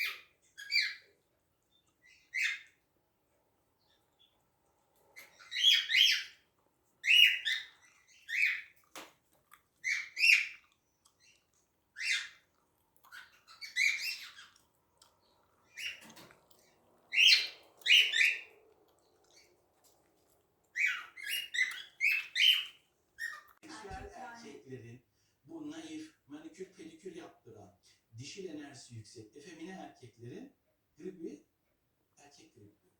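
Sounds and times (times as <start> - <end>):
cockatiels chirping: 0.0 - 1.1, 1.7 - 2.8, 5.2 - 6.4, 7.0 - 8.9, 9.8 - 12.5, 13.1 - 14.6, 15.3 - 16.4, 17.1 - 18.6, 20.7 - 23.6.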